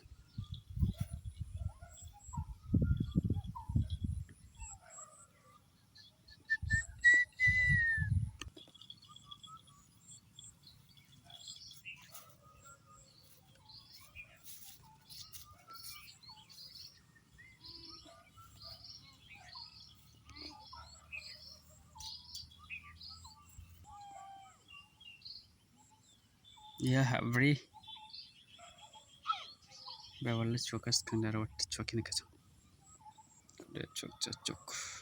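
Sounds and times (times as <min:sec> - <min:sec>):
birds chirping: 0:00.0 - 0:35.0.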